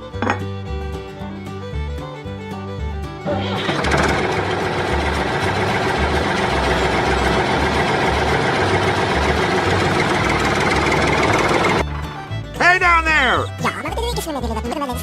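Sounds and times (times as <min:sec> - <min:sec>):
background music with bass line: 0:00.0 - 0:15.0
small tractor engine running: 0:03.2 - 0:11.8.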